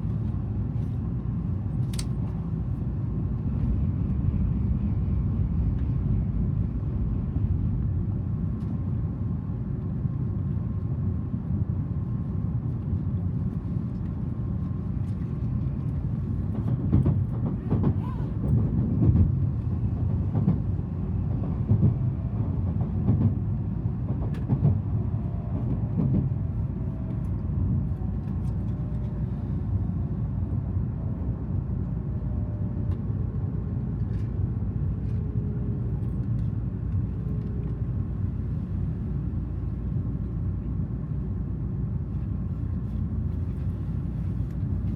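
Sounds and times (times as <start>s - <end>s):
train cabin rumble: 12.7s - 44.9s.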